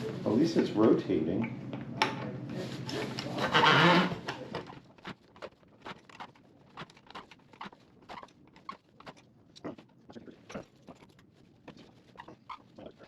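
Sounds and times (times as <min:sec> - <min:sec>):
metal scraping and squeaking: 0:03.3 - 0:04.2.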